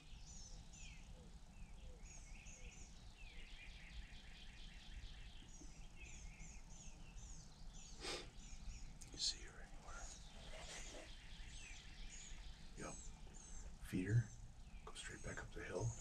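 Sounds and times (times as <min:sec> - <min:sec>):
birds singing: 0:00.0 - 0:16.0
brief rustle: 0:09.8 - 0:11.1.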